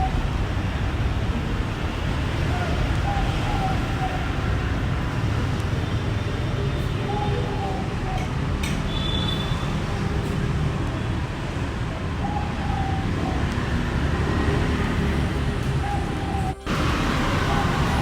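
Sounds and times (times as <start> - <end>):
rumble of passing vehicles: 0.0 - 18.0.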